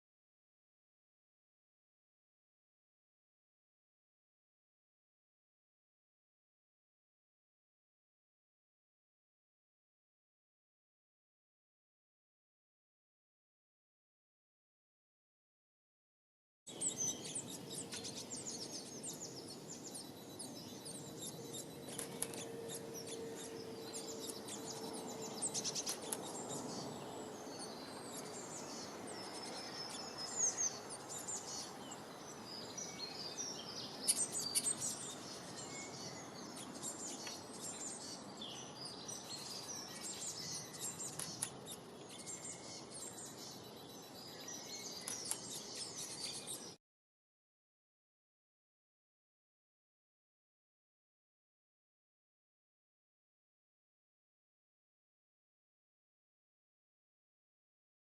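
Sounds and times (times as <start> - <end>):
birds chirping and trilling: 16.7 - 46.8.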